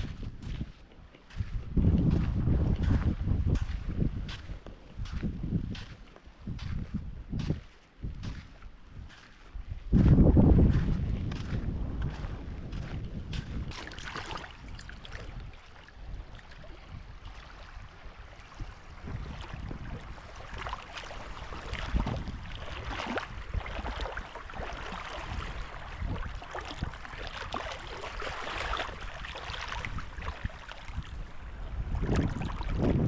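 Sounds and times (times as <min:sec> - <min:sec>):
wind buffeting microphone: 0:00.0 - 0:33.0
rushing water: 0:13.7 - 0:33.0.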